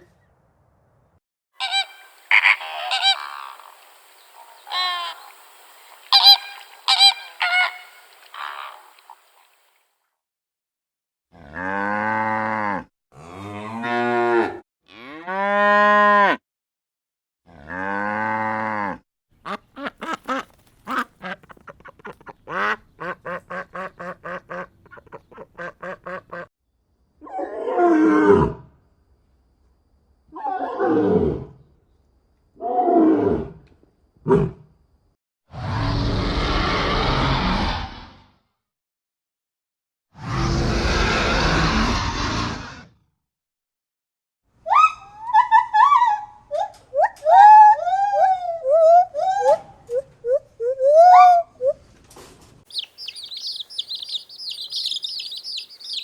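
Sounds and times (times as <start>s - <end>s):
hoarse farm animal calls: 1.6s - 3.8s, 6.1s - 9.0s, 52.7s - 56.0s
ducks quacking: 1.6s - 9.5s, 52.7s - 56.0s.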